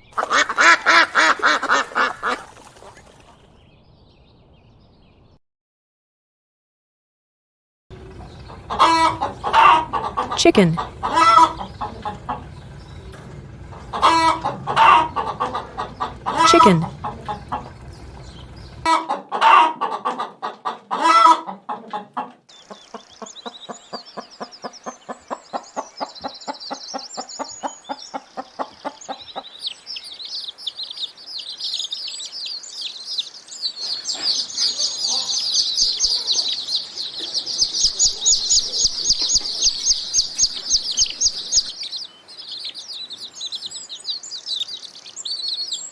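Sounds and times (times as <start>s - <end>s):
chickens clucking and squawking: 0.1s - 3.4s, 7.9s - 31.1s, 33.6s - 43.1s.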